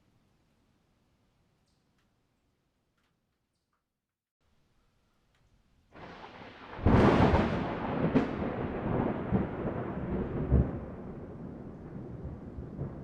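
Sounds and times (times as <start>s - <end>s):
thunder rumbling and cracking: 6.0s - 13.0s.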